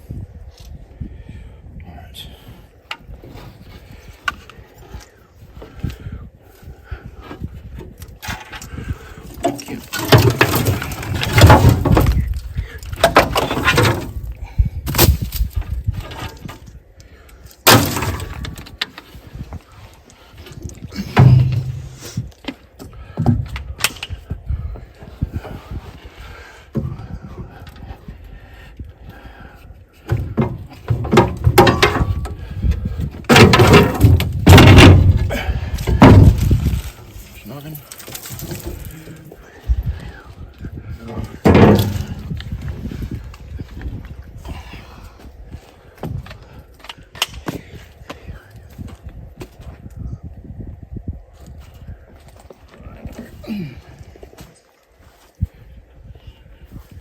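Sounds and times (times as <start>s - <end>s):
metal parts and tools clattering: 8.3s - 14.3s, 30.4s - 32.4s, 33.2s - 39.3s, 41.4s - 42.5s
heavy rumble: 17.7s - 22.4s, 23.0s - 37.4s, 38.5s - 46.7s.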